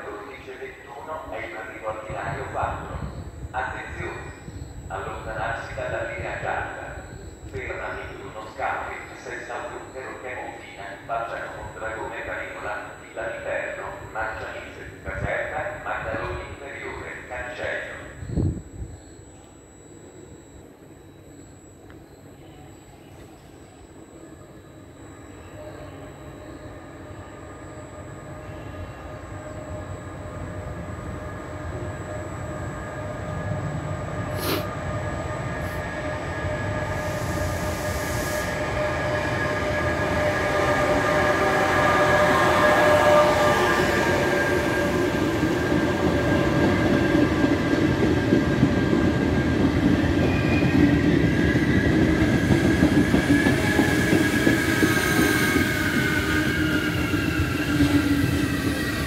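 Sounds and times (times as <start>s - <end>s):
train rumbling: 29.4s - 59.0s.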